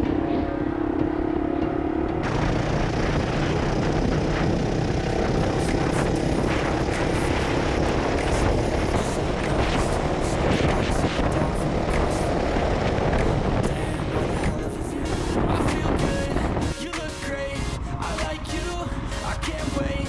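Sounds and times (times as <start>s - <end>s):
wind on microphone: 0.0s - 20.0s
motorcycle engine running: 0.8s - 13.5s.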